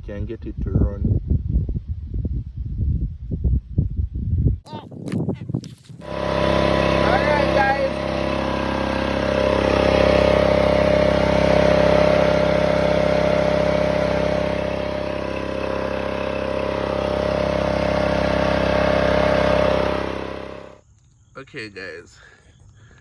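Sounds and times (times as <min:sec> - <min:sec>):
small gasoline engine running: 0:05.6 - 0:20.8.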